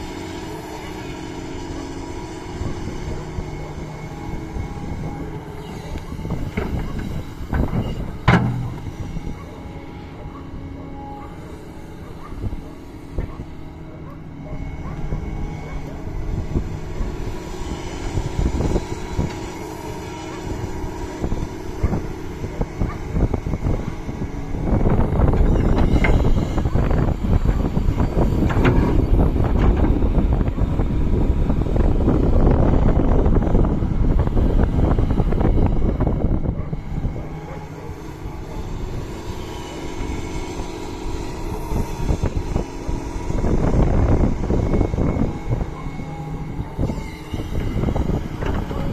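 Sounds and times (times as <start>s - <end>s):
excavator diesel engine running: 0.0s - 48.9s
knocks and clanks: 6.3s - 9.5s
knocks: 7.6s - 9.0s.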